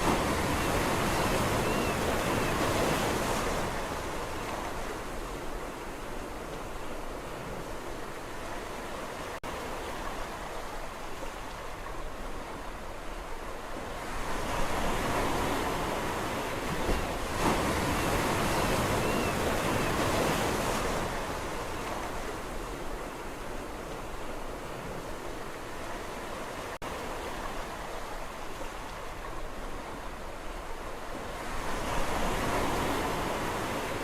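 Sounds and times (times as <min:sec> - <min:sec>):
sea waves washing on shore: 0:00.0 - 0:34.0.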